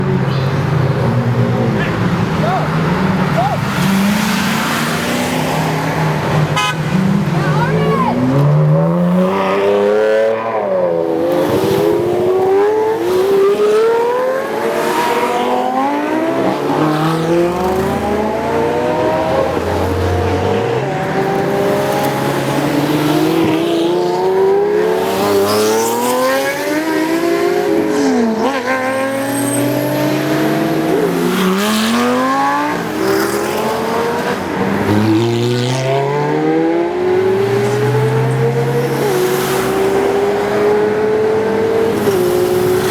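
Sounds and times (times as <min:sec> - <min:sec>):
sports cars accelerating hard: 0:00.0 - 0:42.9.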